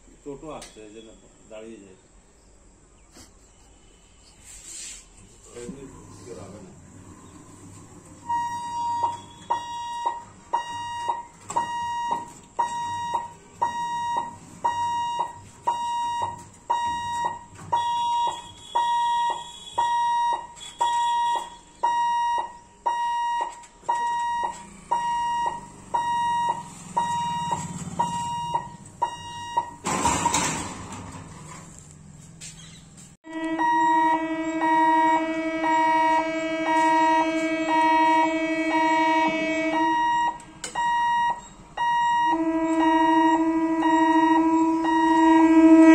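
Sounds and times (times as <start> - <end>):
level crossing buzzer beeping: 6.2 - 31.3, 33.3 - 45.9.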